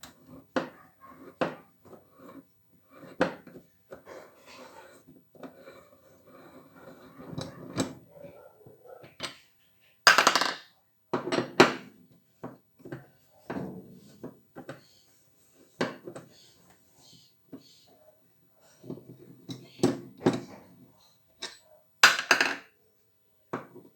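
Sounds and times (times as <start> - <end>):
tools clattering: 21.4 - 22.6.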